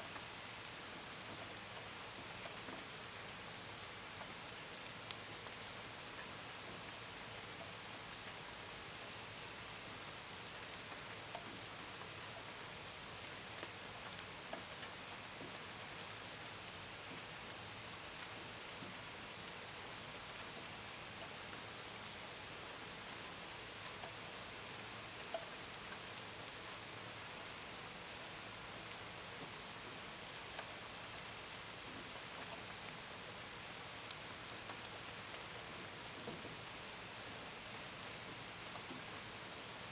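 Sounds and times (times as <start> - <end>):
gentle rain: 0.0 - 39.9
raindrops pattering on a window: 0.1 - 39.9
crickets chirping: 20.9 - 39.6.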